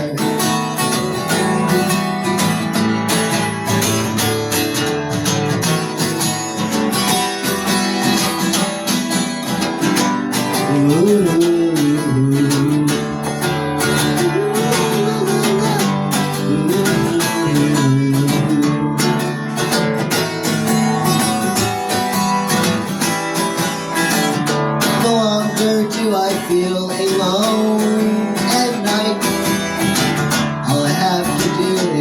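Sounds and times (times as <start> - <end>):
person singing: 0.0 - 2.4, 10.3 - 19.7, 24.8 - 32.0
strummed acoustic guitar: 0.0 - 32.0.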